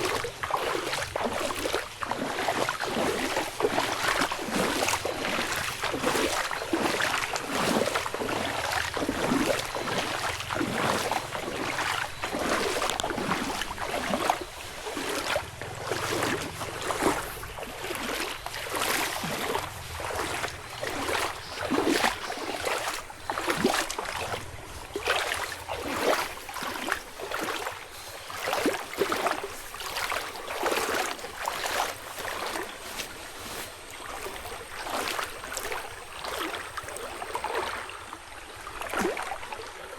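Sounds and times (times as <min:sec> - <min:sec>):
footsteps crunching through leaves: 0:00.0 - 0:37.2.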